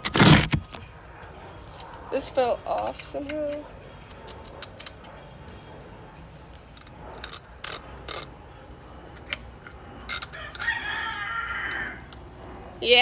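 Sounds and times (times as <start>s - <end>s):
hard plastic parts clicking: 0.0s - 0.9s
plastic ratcheting scrapes: 0.0s - 0.9s, 6.8s - 8.4s.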